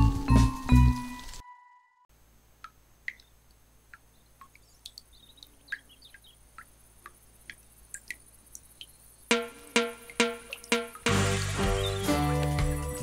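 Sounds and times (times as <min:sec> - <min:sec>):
faint bird chirps: 0:04.0 - 0:06.7.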